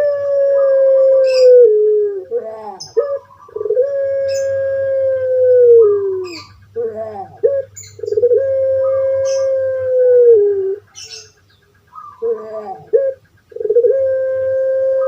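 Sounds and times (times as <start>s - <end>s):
dove cooing: 0.0s - 15.0s
faint small bird chirps: 10.5s - 15.0s.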